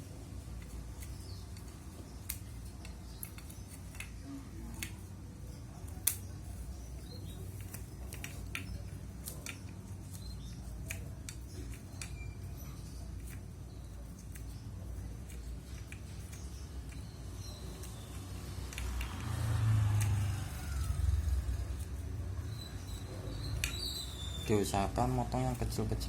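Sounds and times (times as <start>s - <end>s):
scissors snipping: 7.2s - 22.6s.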